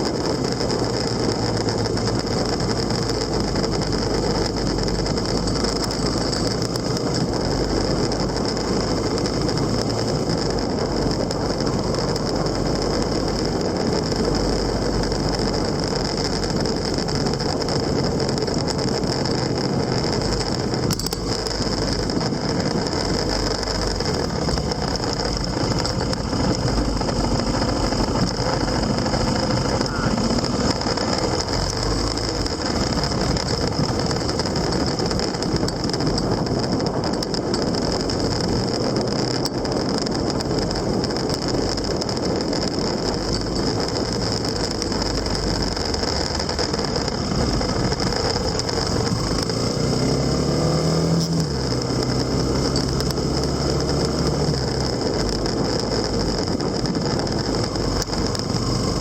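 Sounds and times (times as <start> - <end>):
vehicle engine and wind noise: 0.0 - 59.0
engine hum rising: 0.8 - 39.4.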